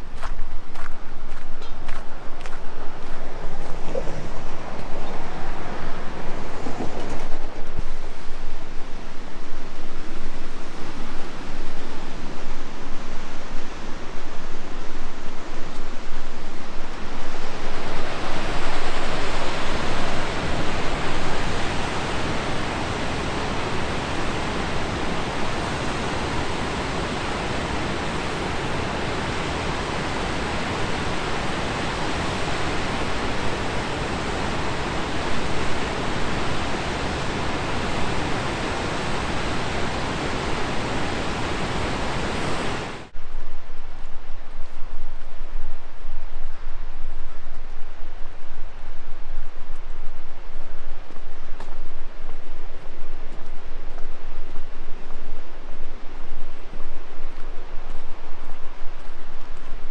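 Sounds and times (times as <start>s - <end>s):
rushing waterfall: 2.4s - 43.2s.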